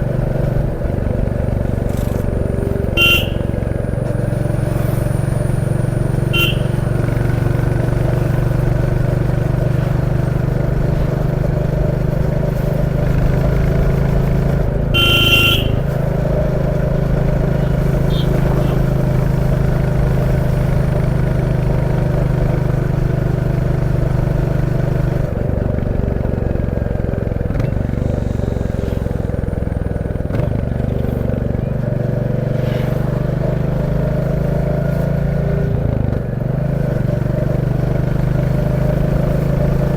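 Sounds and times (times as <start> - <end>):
motorcycle engine running: 0.0 - 39.9
short vehicle horn beeps: 2.7 - 3.7, 6.1 - 7.3, 14.9 - 16.1, 18.0 - 18.8.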